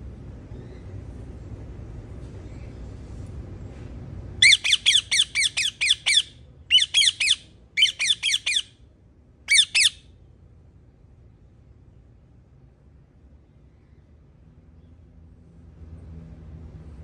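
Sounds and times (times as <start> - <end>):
parrot squawking: 4.4 - 8.7, 9.5 - 10.0.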